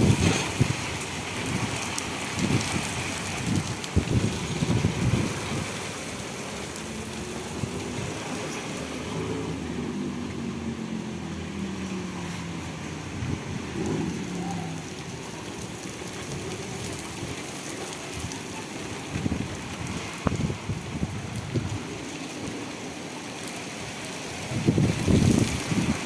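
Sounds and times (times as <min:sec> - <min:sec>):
wind gusting on the microphone: 0:00.0 - 0:08.9, 0:12.2 - 0:26.0
heavy rain falling: 0:00.0 - 0:26.0
vehicle engine hum: 0:02.9 - 0:17.9.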